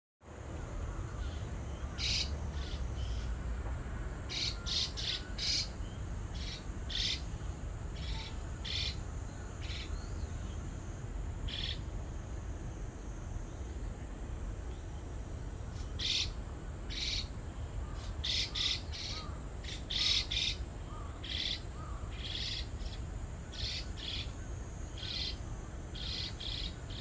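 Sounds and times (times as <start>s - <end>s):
harsh bird calls: 1.1s - 3.4s, 4.3s - 5.8s, 15.7s - 24.4s.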